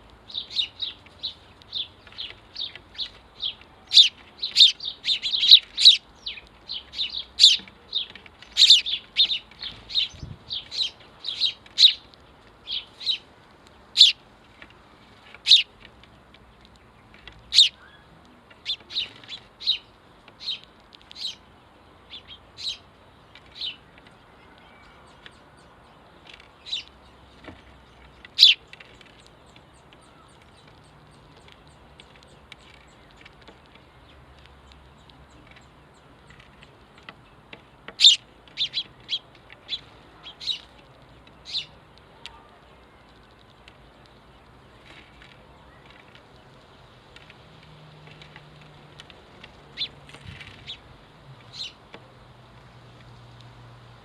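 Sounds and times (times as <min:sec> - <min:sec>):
sparrows chirping: 0:00.0 - 0:54.0.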